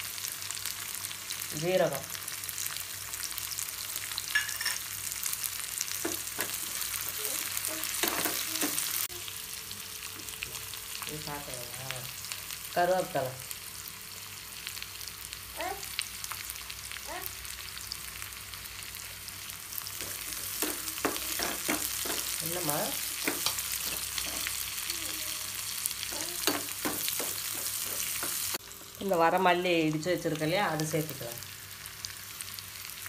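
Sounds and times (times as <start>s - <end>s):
food sizzling in hot oil: 0.0s - 33.0s
metal spatula scraping pan: 23.1s - 24.7s.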